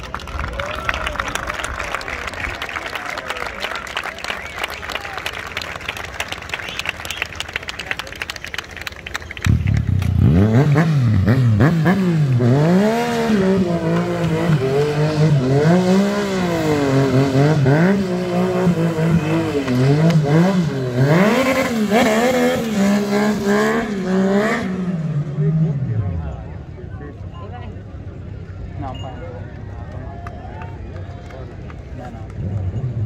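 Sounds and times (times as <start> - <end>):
motorcycle engine revving: 9.4 - 26.2.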